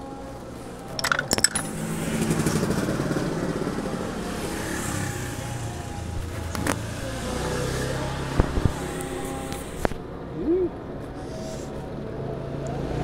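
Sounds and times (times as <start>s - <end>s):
small motorcycle engine running: 1.4s - 6.2s.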